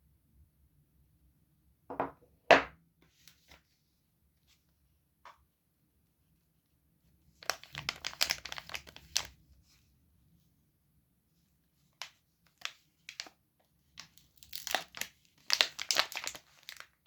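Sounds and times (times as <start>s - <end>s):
wrapper crinkling and tearing: 7.4s - 9.3s, 12.5s - 13.3s, 14.0s - 17.0s.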